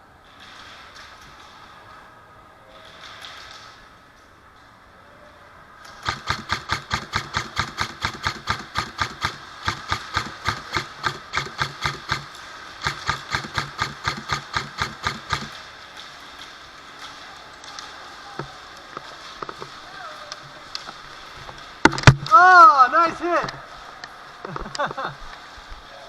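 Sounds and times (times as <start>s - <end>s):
airsoft gun firing: 5.9s - 15.7s, 21.8s - 22.4s.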